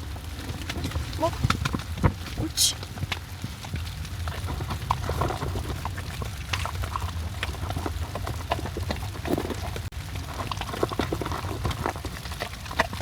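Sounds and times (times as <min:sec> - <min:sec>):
dog chewing and crunching: 0:00.0 - 0:13.0.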